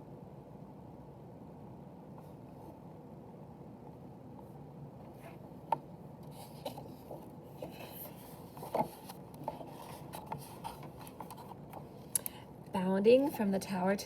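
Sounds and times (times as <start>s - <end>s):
picture book rustling: 6.2s - 12.1s.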